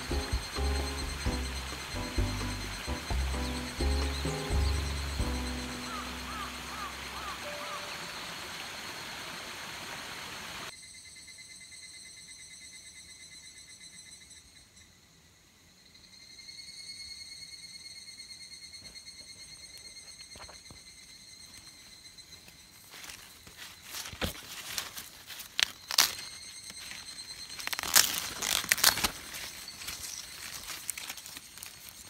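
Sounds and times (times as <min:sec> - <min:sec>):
insects chirring: 0:00.0 - 0:15.0, 0:15.7 - 0:32.0
crackling handling sounds: 0:23.6 - 0:32.0.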